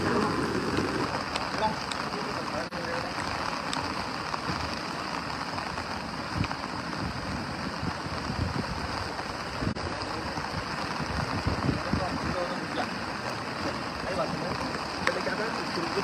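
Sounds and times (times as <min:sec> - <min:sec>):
heavy rain on wet ground: 0:00.0 - 0:16.0.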